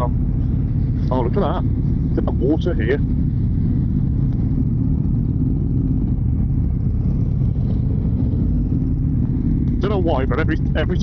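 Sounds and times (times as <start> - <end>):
motorcycle engine rumbling: 0.0 - 11.0
road noise: 0.0 - 11.0.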